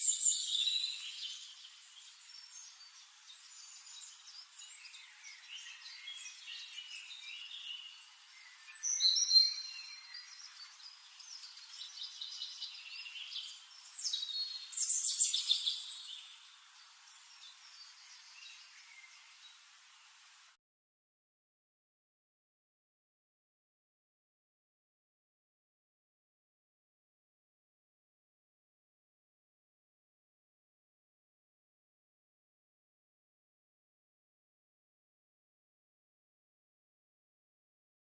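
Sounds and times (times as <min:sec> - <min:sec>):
birds chirping and calling: 0:00.0 - 0:19.4.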